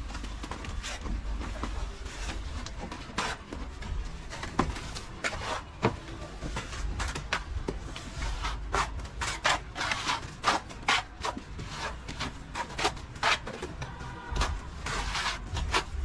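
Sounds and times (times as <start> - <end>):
plastering tool scraping a wall: 8.0 - 16.0.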